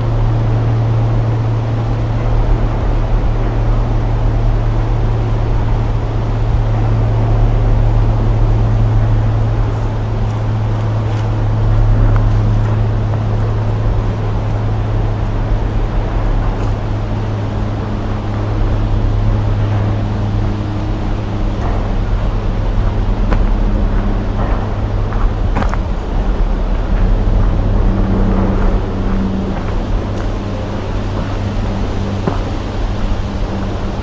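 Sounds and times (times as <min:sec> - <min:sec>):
low engine-like drone: 0:00.0 - 0:34.0.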